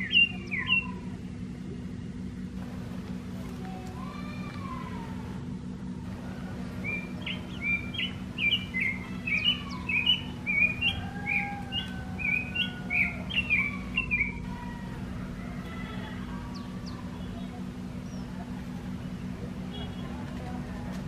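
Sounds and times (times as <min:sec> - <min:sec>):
bird chirping: 0:00.0 - 0:01.1, 0:06.1 - 0:20.1
steady low hum: 0:00.0 - 0:21.0.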